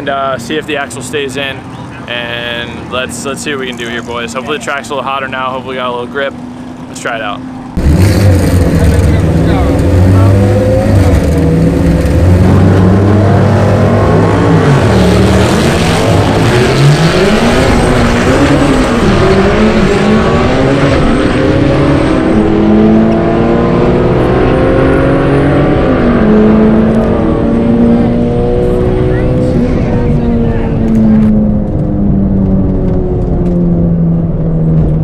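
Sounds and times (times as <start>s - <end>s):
turbocharged car engine running hard: 7.8s - 35.0s.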